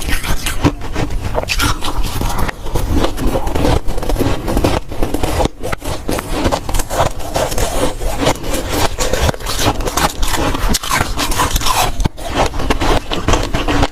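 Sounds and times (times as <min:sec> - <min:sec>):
chewing crunchy frost: 0:00.0 - 0:13.9.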